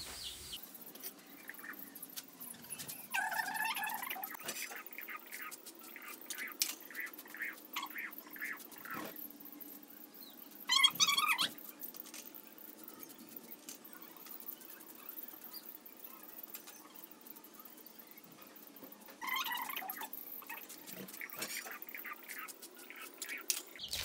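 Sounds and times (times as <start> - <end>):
parrot chirping: 0.0 - 0.6, 10.7 - 11.6, 19.2 - 20.6, 21.2 - 24.0.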